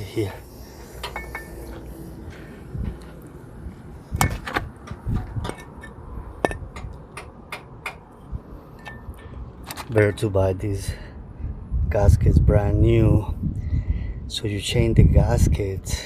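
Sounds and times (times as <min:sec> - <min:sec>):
low background rumble: 0:00.0 - 0:16.0
metal parts and tools clicking: 0:01.0 - 0:01.8.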